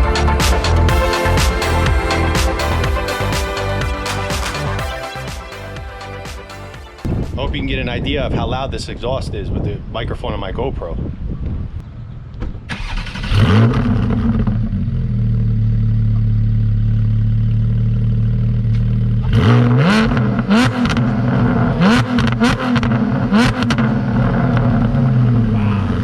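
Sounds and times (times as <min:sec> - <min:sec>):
car engine revving: 0:12.8 - 0:15.5, 0:19.2 - 0:26.0.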